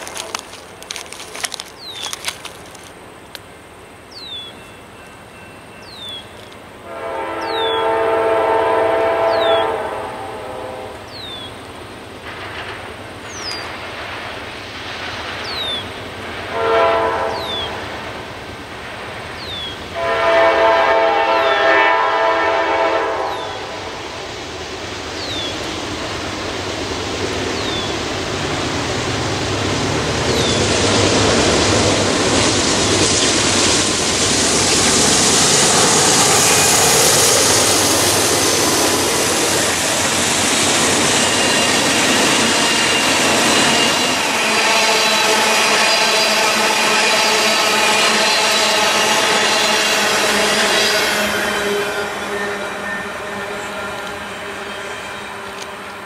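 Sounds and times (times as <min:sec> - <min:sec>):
train rumble: 0:00.0 - 0:56.0
wheel and rail noise: 0:00.0 - 0:56.0
birds chirping: 0:01.5 - 0:06.7, 0:07.4 - 0:07.9, 0:09.2 - 0:09.8, 0:11.0 - 0:12.0, 0:13.2 - 0:13.8, 0:15.4 - 0:16.1, 0:17.3 - 0:17.9, 0:19.3 - 0:19.9, 0:25.1 - 0:25.8, 0:27.4 - 0:28.2, 0:30.2 - 0:30.9
train horn blasts: 0:06.8 - 0:11.2, 0:16.5 - 0:17.9, 0:19.9 - 0:24.0, 0:42.6 - 0:56.0.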